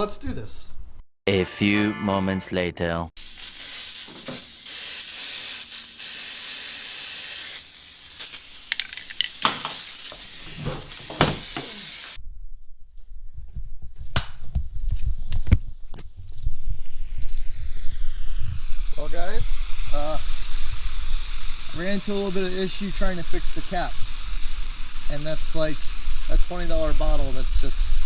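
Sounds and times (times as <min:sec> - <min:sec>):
aerosol can spraying hiss: 0:03.2 - 0:12.2, 0:16.7 - 0:28.0
low rumble: 0:12.2 - 0:21.1.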